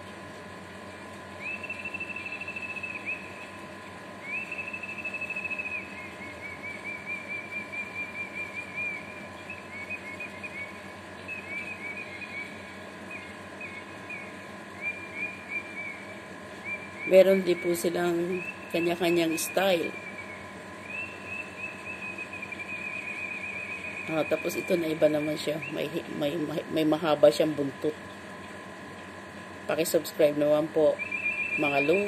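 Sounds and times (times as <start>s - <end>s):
electrical hum: 0.0s - 32.0s
bird calling through speaker: 13.2s - 26.9s, 29.9s - 32.0s.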